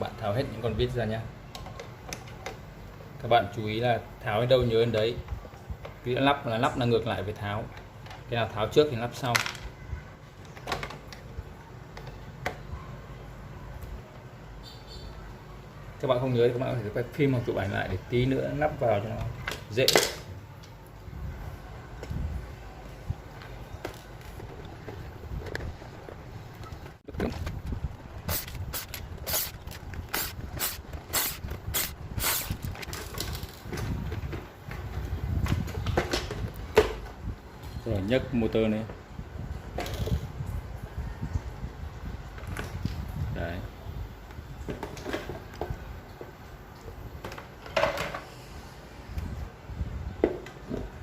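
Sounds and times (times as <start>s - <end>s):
plastic parts and screws clicking: 26.6s - 33.8s.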